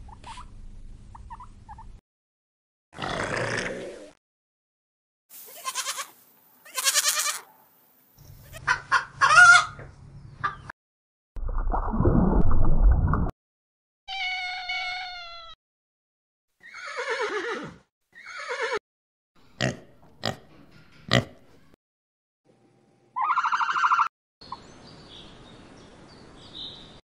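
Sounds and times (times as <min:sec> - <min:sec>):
pig grunts: 0:03.0 - 0:04.1, 0:19.6 - 0:20.5
cat meowing: 0:14.1 - 0:15.6
buzzy animal call: 0:23.2 - 0:24.1
long falling animal calls: 0:23.2 - 0:24.1.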